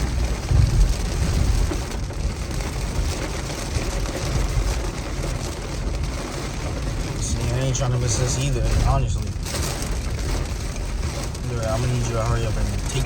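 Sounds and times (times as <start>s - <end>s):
car engine and road noise: 0.0s - 13.0s
continuous hiss: 11.4s - 13.0s.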